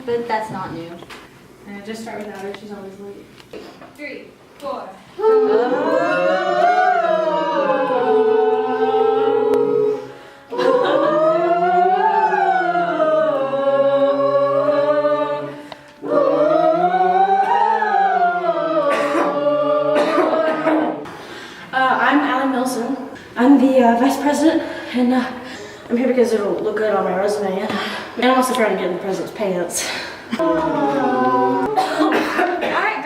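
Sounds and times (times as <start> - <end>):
a cappella group singing: 5.1 - 21.8, 30.3 - 32.6.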